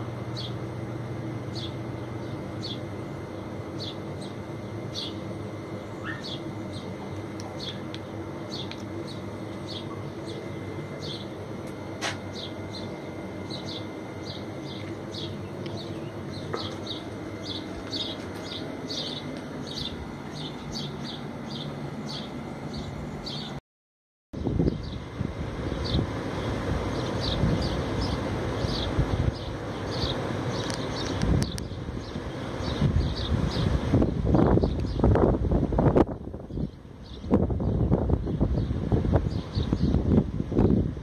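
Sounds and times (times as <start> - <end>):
steady low hum: 0.0 - 23.6, 24.4 - 41.0
small bird chirping: 5.8 - 6.9, 12.3 - 23.6.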